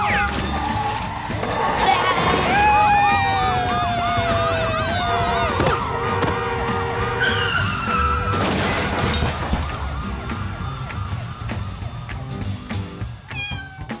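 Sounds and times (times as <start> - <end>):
cartoon background music: 0.0 - 14.0
falling whistle glide: 6.2 - 8.5.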